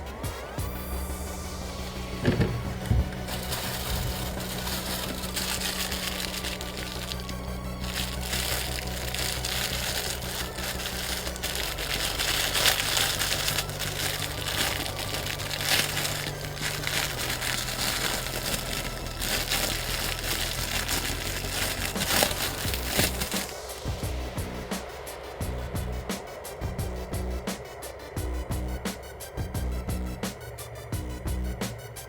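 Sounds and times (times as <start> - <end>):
low steady hum: 0.8 - 24.7
plastic packaging crinkling: 2.1 - 23.7.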